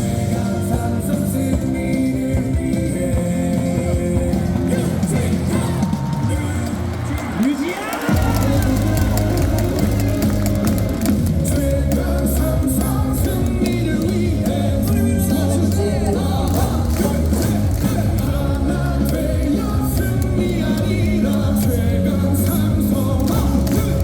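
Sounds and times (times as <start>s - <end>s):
fans singing along: 0.0s - 24.0s
rock song over speakers: 0.0s - 24.0s.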